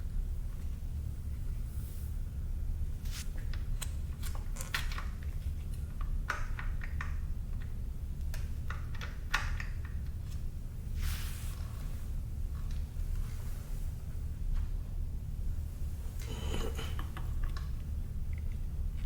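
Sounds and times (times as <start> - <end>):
steady low hum: 0.0 - 19.0
metal scrape: 16.2 - 17.0.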